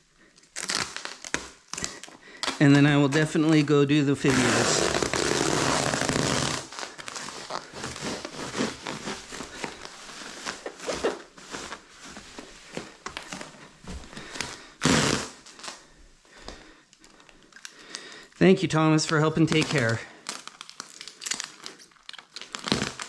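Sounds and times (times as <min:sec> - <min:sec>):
plastic film crackling and rustling: 0:00.3 - 0:23.0
adhesive film tearing off roll: 0:04.2 - 0:11.7, 0:19.0 - 0:23.0.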